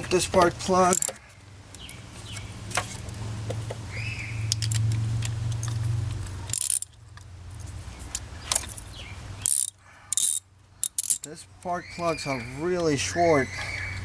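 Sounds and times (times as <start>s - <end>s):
socket wrench clinking and clicking: 0.9s - 1.2s, 6.5s - 7.0s, 9.4s - 11.3s
metallic clatter: 5.5s - 7.0s, 9.4s - 11.3s.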